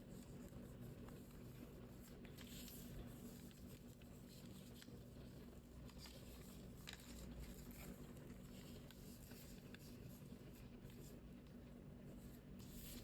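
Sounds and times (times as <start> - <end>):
low steady hum: 0.0 - 13.0
paper being folded: 0.0 - 13.0.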